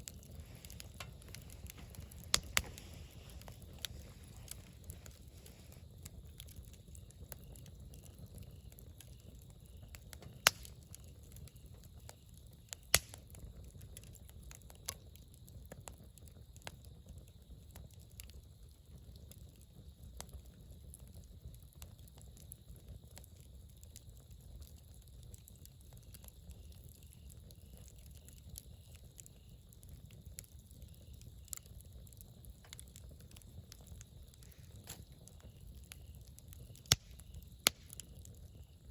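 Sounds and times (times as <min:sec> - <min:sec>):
faint low rumble: 0:00.0 - 0:07.4
campfire crackling: 0:00.0 - 0:38.9
loud sharp pops: 0:12.9 - 0:13.2, 0:36.9 - 0:37.9.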